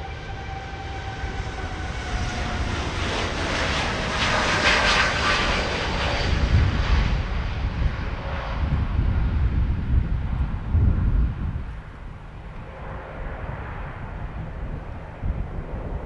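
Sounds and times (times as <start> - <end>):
jet engines taking off: 0.0 - 16.0.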